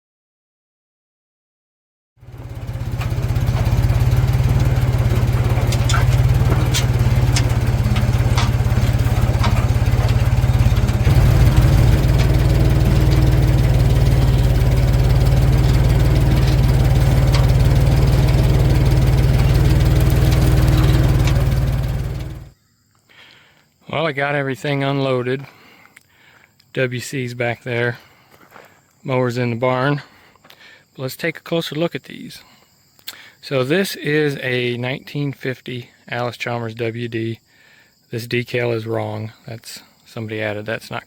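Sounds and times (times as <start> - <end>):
vehicle engine rumbling: 2.2 - 22.5
rattles: 2.3 - 22.5.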